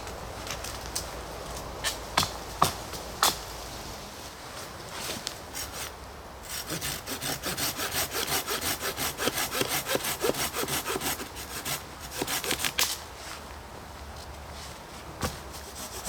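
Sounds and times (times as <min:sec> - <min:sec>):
hand saw cutting wood: 0:05.5 - 0:05.9, 0:06.5 - 0:13.0, 0:15.5 - 0:16.0.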